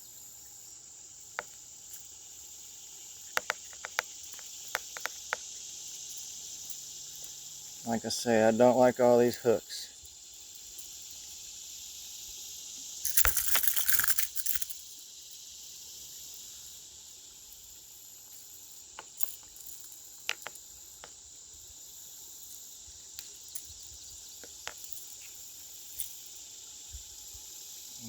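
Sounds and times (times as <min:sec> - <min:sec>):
insects chorus: 0:00.0 - 0:28.0
loud rattling and clicking: 0:13.1 - 0:14.7.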